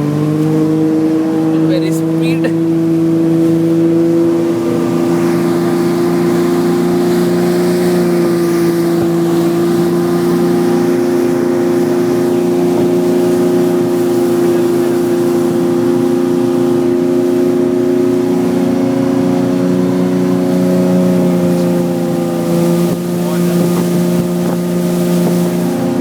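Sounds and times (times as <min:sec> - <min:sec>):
motorboat engine running: 0:00.0 - 0:26.0.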